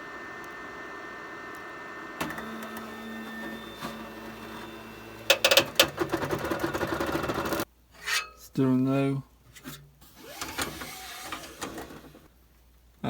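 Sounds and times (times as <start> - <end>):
stepper motors whining: 0.0 - 7.6, 10.2 - 12.3
fan hum: 0.0 - 12.4.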